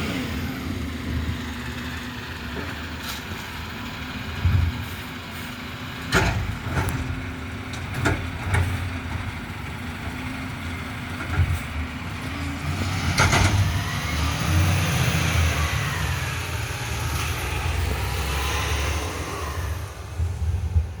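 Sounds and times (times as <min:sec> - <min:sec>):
garbage truck engine running: 0:00.0 - 0:21.0
sharp knocks and clanks: 0:06.0 - 0:09.3.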